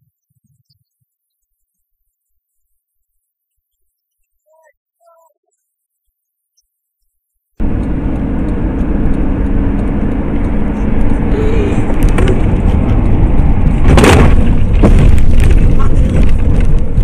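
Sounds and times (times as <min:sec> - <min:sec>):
vehicle engine and road noise: 0:07.6 - 0:17.0.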